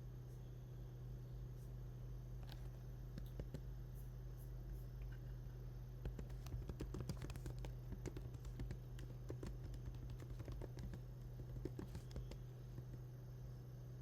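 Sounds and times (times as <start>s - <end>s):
steady low hum: 0.0s - 14.0s
keyboard key clicks: 6.1s - 13.0s.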